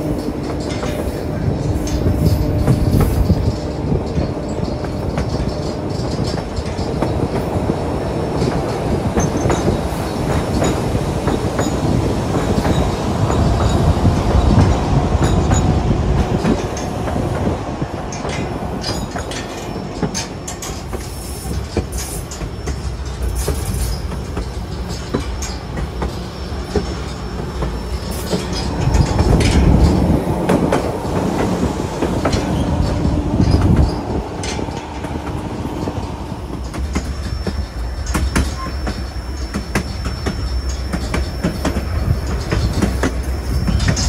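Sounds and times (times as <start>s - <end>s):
train rumble: 0.0s - 44.0s
train wheels clicking over joints: 0.0s - 44.0s
high-pitched wheel squeal: 36.9s - 44.0s.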